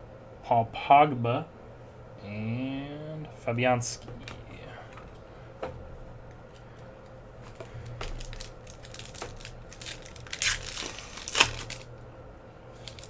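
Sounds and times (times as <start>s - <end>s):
low steady hum: 0.0s - 13.0s
cards clicking and rustling: 7.5s - 11.9s, 12.8s - 13.0s.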